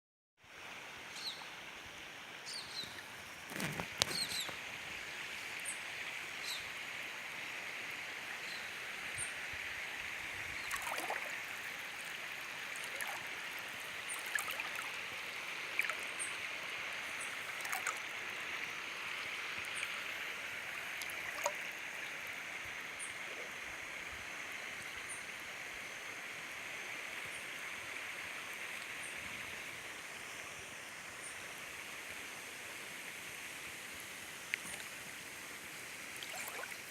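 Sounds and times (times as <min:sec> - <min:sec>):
river water rushing: 0:00.8 - 0:23.1, 0:34.3 - 0:36.9.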